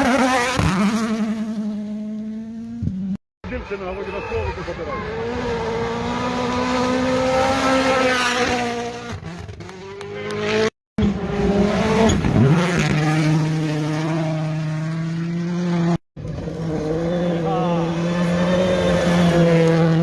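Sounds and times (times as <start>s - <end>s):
rally car engines at high revs: 0.0s - 3.2s, 4.4s - 20.0s.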